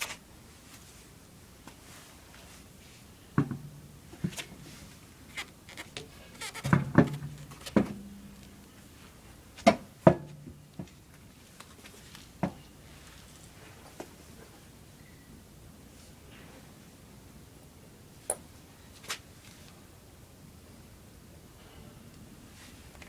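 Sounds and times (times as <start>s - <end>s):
metallic clanks and knocks: 3.4s - 4.9s, 6.4s - 9.0s, 9.7s - 11.0s.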